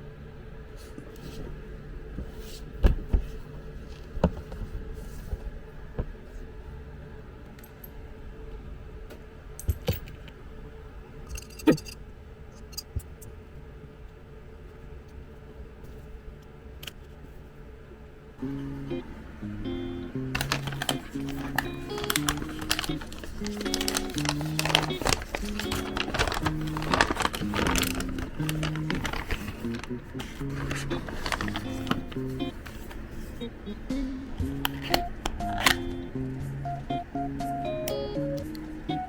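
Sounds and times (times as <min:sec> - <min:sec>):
low hum: 0:18.2 - 0:38.9.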